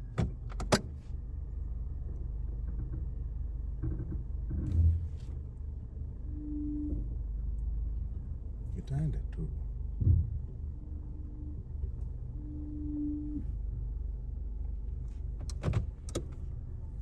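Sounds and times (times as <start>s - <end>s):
low steady rumble: 0.0s - 17.0s
brief thump: 10.0s - 10.5s.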